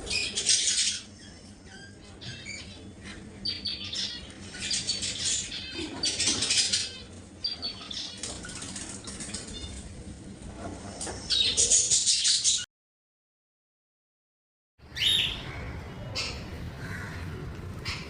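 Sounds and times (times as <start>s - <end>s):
birds chirping and squawking: 0.0s - 12.7s, 14.8s - 18.0s
wing flutters: 8.0s - 11.9s.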